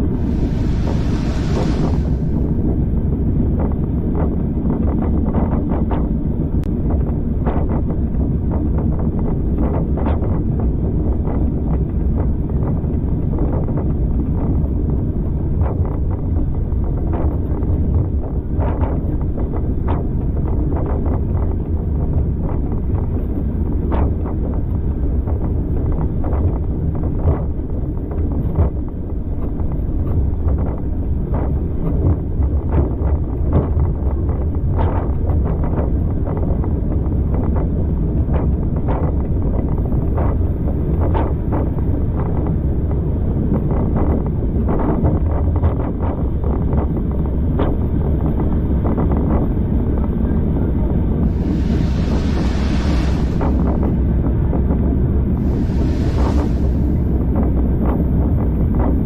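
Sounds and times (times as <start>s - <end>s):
train low rumble: 0.0s - 59.0s
wind buffeting microphone: 0.0s - 59.0s.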